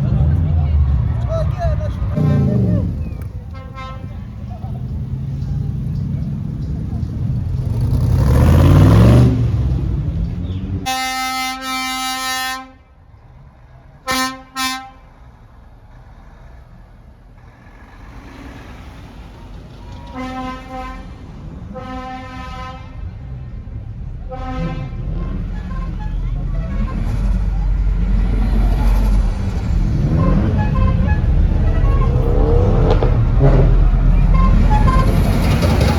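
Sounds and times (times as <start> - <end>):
car engine revving: 0.0 - 10.9, 24.2 - 35.9
low rumble of engines: 0.0 - 35.9
car horn honking: 2.2 - 5.9, 10.8 - 12.8, 14.0 - 15.1, 20.0 - 21.2, 21.8 - 23.1, 24.3 - 27.7, 29.9 - 35.9.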